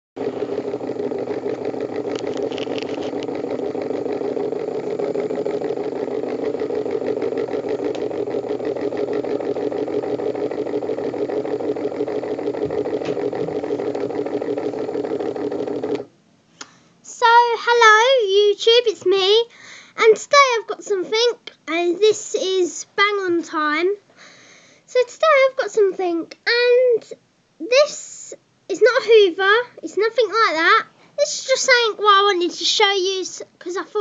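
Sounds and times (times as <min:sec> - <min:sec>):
motor buzzing steadily: 0:00.2 - 0:16.1.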